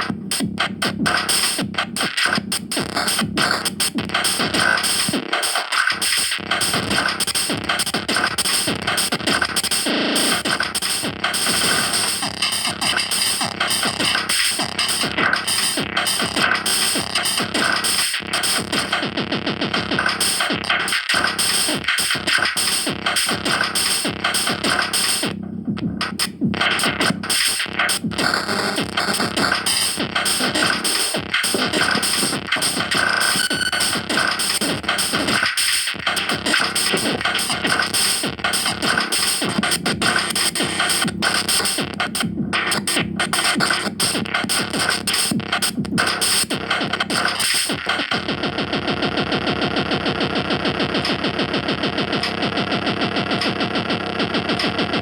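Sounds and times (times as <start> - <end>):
electronic music: 5.8 - 19.1, 19.7 - 48.4.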